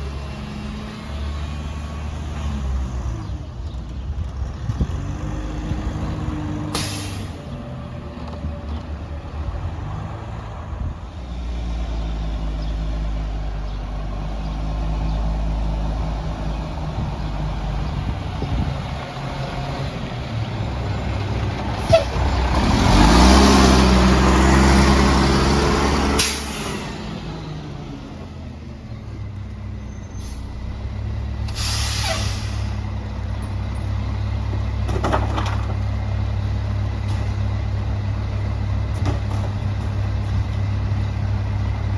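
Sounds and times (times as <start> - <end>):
diesel engine revving: 0.0 - 41.9
air brake hiss: 6.7 - 7.3, 26.2 - 26.8, 30.2 - 30.5, 31.5 - 32.8.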